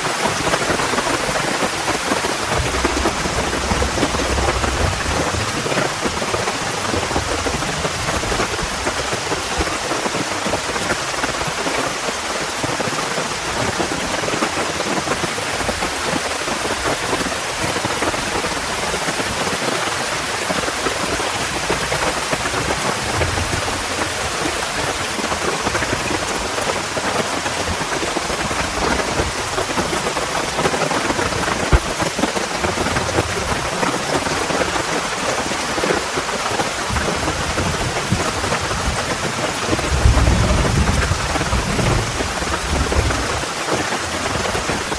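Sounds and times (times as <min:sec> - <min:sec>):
heavy rain: 0:00.0 - 0:44.9
distant thunder rumbles: 0:01.1 - 0:09.4, 0:36.6 - 0:44.9.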